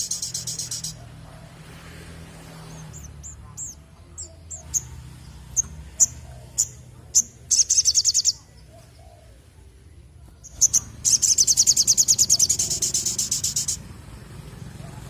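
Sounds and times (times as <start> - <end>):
bird chips and trills: 0.0 - 1.1, 2.6 - 9.2, 10.4 - 13.8.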